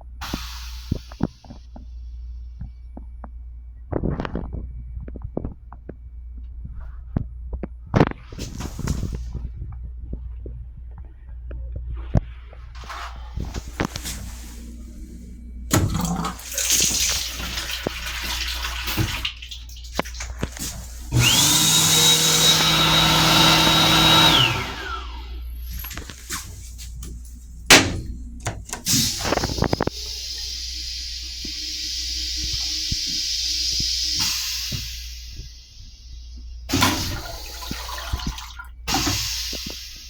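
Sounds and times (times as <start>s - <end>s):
toilet flushing rush: 12.8s - 35.4s, 36.7s - 40.0s
clicks and knocks: 27.0s - 29.0s.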